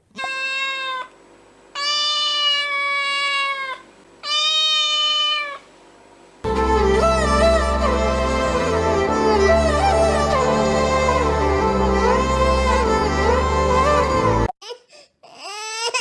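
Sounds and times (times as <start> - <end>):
meow-like calls: 0.1 - 1.1, 1.8 - 5.7
string music: 6.5 - 14.5.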